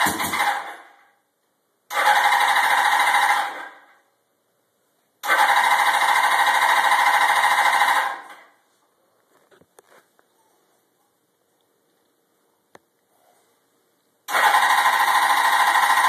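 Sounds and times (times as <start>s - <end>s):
motorcycle electric starter cranking: 0.0s - 0.8s, 1.9s - 3.8s, 5.2s - 8.2s, 14.3s - 16.0s.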